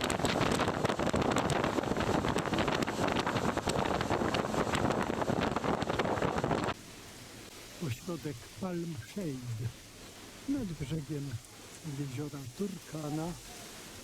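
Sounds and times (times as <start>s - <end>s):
wind buffeting microphone: 0.0s - 6.8s.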